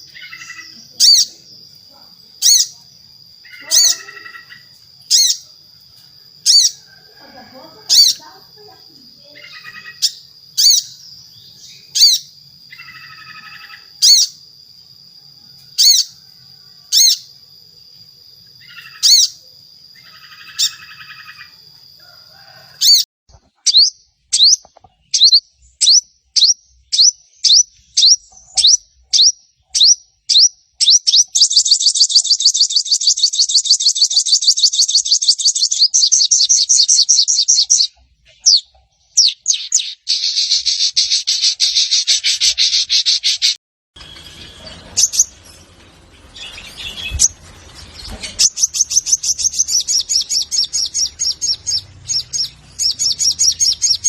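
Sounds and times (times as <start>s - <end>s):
bird chip notes and trill: 23.6s - 54.0s.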